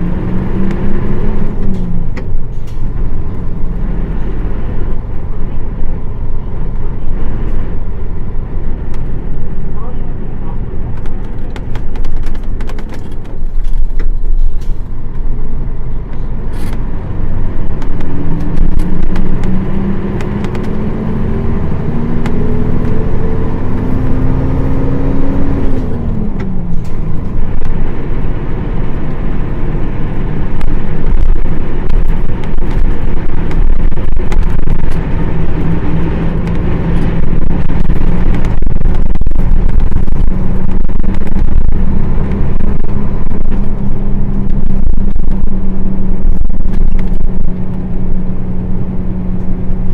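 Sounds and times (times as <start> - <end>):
diesel bus engine accelerating: 0.0 - 49.9
rattles: 10.9 - 15.2.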